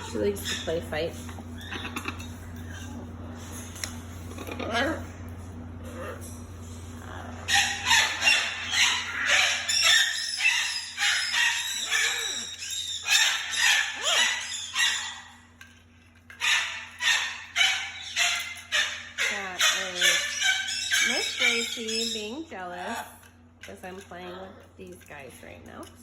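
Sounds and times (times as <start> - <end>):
parrot screeching: 0.0 - 0.8, 1.5 - 3.0, 4.3 - 5.1, 6.9 - 15.5, 16.3 - 23.0.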